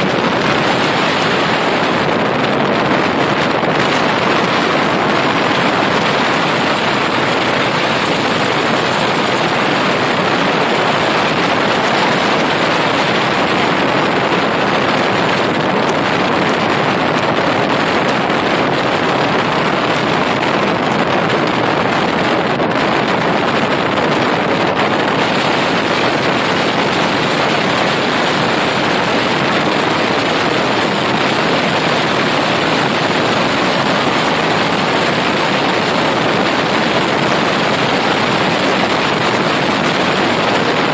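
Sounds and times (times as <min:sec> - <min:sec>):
vehicle road noise: 0:00.0 - 0:40.9
wind rushing: 0:00.0 - 0:40.9.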